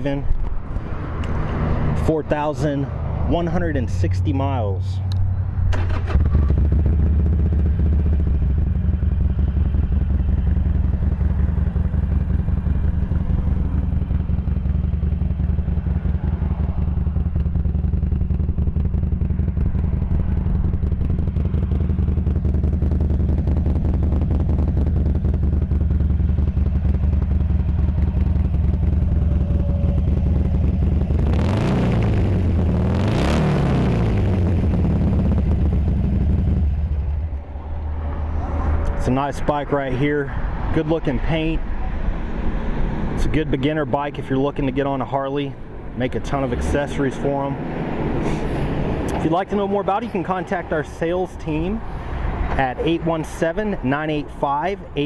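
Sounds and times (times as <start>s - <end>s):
motorcycle engine revving: 0.6s - 39.6s
motorcycle engine idling: 5.0s - 31.4s, 34.1s - 39.3s.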